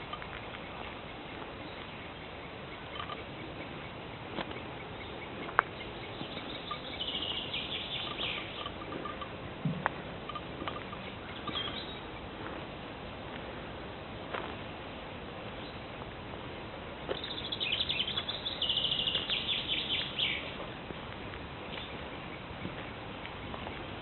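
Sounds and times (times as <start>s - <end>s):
birds singing: 0.0s - 9.4s, 10.3s - 12.4s, 17.1s - 24.0s
background hiss: 0.0s - 24.0s.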